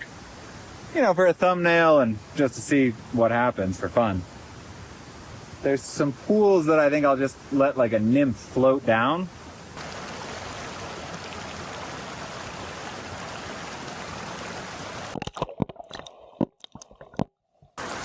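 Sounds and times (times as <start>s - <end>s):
creek water rushing: 4.3s - 15.2s, 17.8s - 18.0s.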